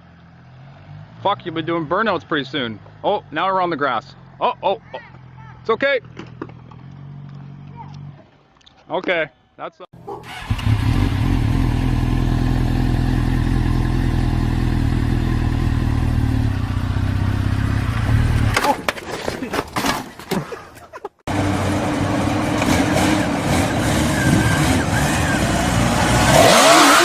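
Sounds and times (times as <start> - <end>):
motorcycle engine running: 10.3 - 18.6.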